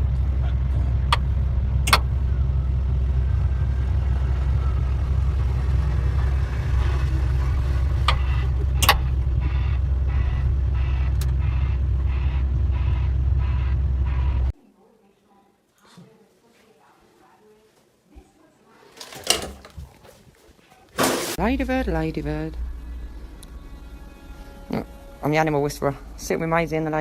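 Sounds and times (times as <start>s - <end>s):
heavy engine low rumble: 0.0s - 14.6s, 21.1s - 27.0s.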